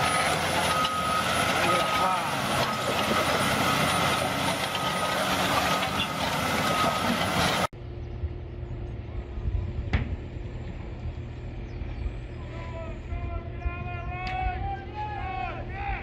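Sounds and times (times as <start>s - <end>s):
heavy vehicle engine: 0.0s - 8.1s.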